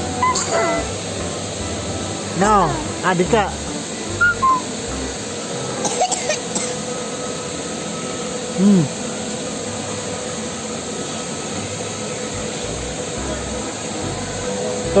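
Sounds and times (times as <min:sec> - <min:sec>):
faint steady hum: 0:00.0 - 0:15.0
steady hissing noise: 0:00.0 - 0:15.0.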